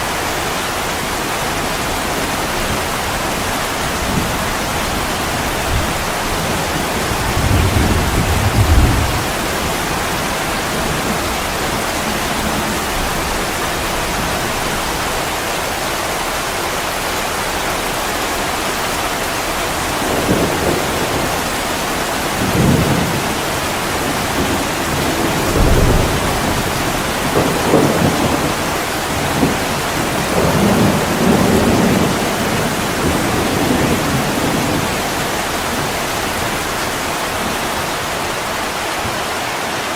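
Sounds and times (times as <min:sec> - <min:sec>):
heavy rain hissing: 0:00.0 - 0:39.9
distant thunder rumbling: 0:02.3 - 0:15.0, 0:19.8 - 0:38.1.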